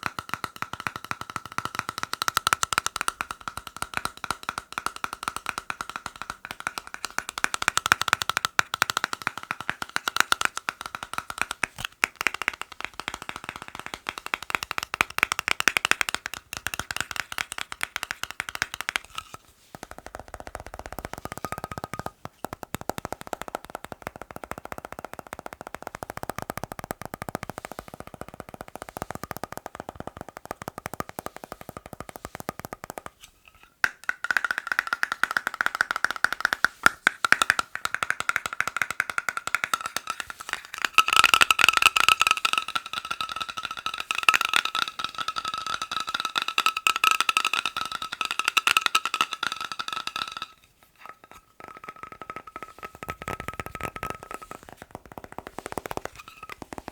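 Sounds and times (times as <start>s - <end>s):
fast tapping on hard objects: 0.0s - 56.9s.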